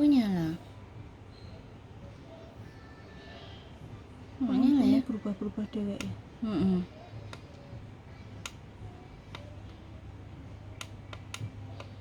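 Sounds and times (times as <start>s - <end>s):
light sharp clicks and taps: 7.3s - 7.6s, 8.4s - 8.6s, 10.8s - 12.0s.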